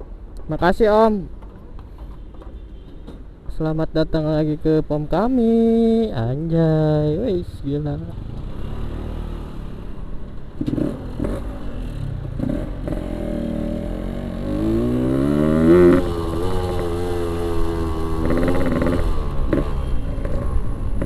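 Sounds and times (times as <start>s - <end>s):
motorcycle engine revving: 8.0s - 21.0s.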